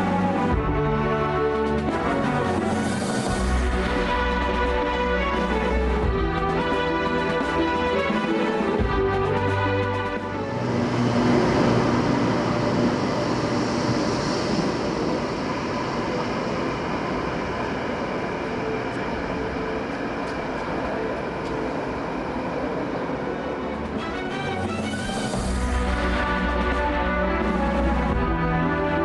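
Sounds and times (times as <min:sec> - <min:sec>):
train rushing past on rails: 0:00.0 - 0:29.0.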